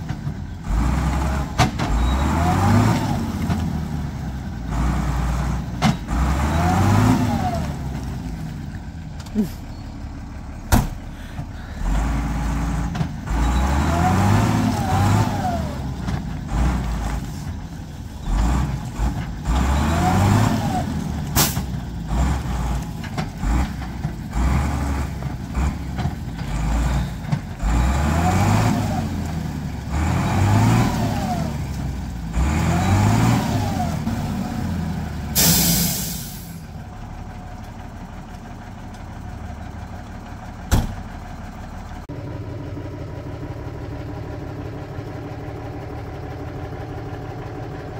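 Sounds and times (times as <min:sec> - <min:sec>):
vehicle engine revving: 0:00.0 - 0:09.6, 0:10.3 - 0:17.5, 0:18.2 - 0:36.2.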